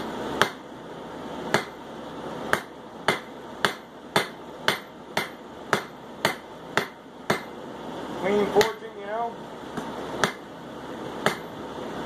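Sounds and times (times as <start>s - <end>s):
hammer striking steel on anvil: 0.0s - 0.7s, 1.5s - 1.8s, 2.5s - 7.5s, 8.6s - 8.8s, 9.8s - 10.5s, 11.2s - 11.6s.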